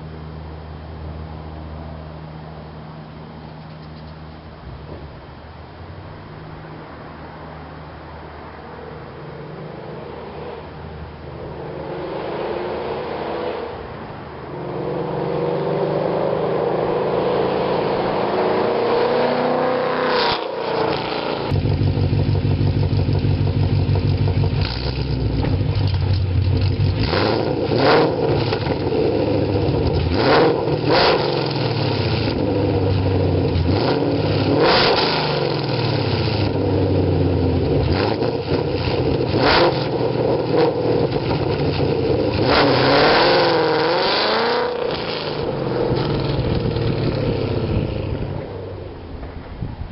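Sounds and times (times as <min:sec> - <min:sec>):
car engine revving: 0:09.2 - 0:49.3.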